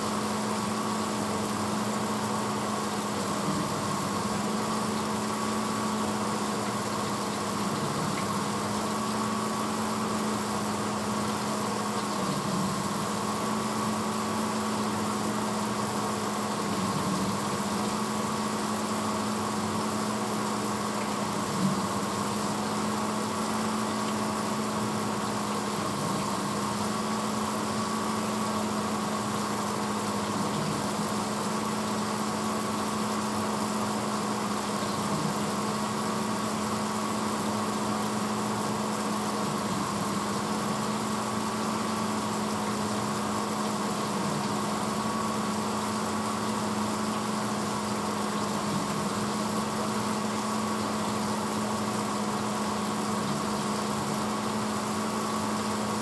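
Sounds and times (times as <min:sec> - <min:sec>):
dishwasher running: 0:00.0 - 0:56.0.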